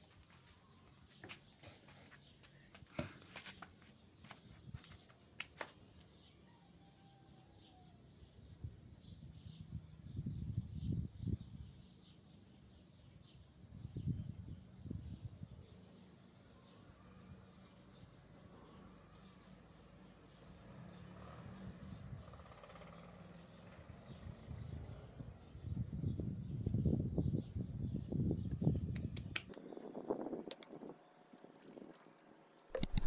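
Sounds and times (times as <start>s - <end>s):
rustling and bumping in plants: 0.0s - 5.9s
small bird chirping: 25.6s - 33.0s.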